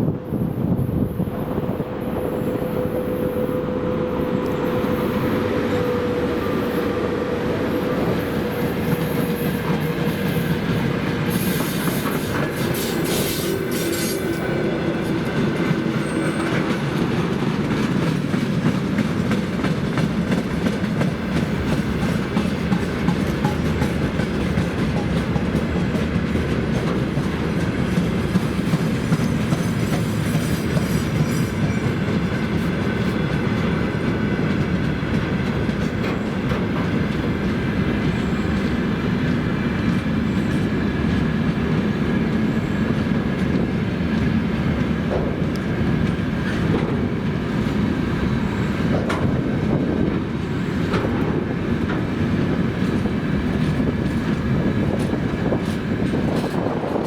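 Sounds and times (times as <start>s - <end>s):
freight train wagons rumbling: 0.0s - 57.0s
wheel clatter over rail joints: 48.4s - 57.0s.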